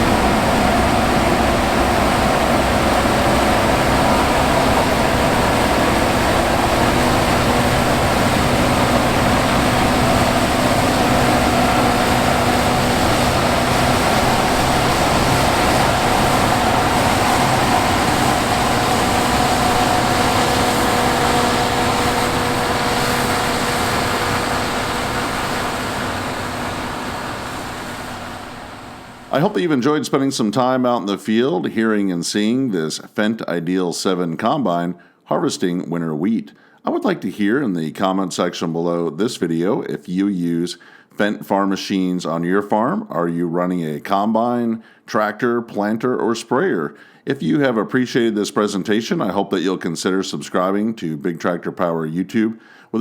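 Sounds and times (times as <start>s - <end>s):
combine harvester engine drone: 0.0s - 29.5s.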